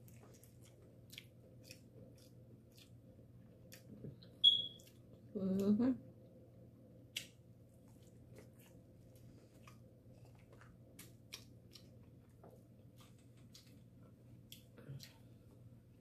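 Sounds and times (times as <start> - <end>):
wet chewing: 0.0 - 5.2, 7.1 - 15.3.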